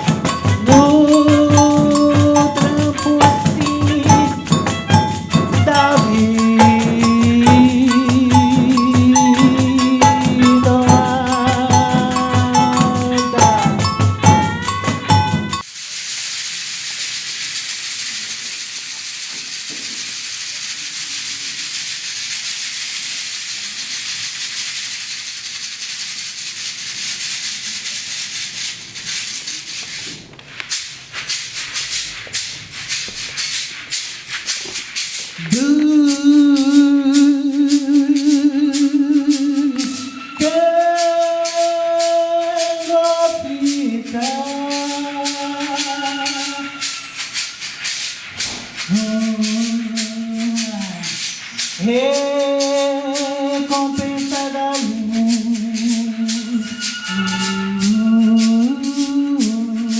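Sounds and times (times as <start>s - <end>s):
person singing wordless notes: 0.0s - 15.6s, 35.4s - 47.0s, 48.9s - 51.2s, 51.8s - 59.9s
jingling percussion strokes: 0.0s - 15.7s, 31.1s - 59.9s
shaken rattle: 0.0s - 59.9s.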